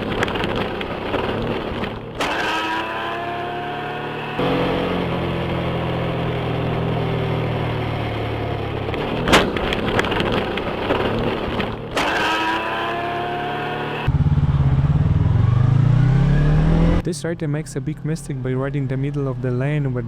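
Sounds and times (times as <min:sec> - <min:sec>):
vehicle engine running: 0:00.0 - 0:20.0
wind and road noise: 0:00.0 - 0:20.0
clattering: 0:08.9 - 0:12.7
loud bang: 0:09.2 - 0:10.1.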